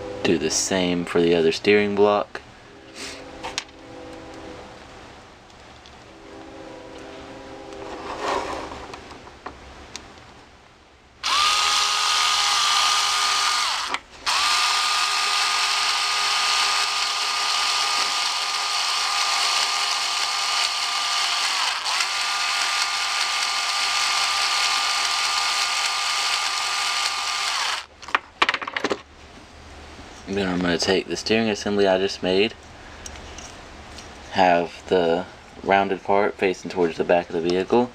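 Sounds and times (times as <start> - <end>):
power drill whining: 11.2 - 27.9.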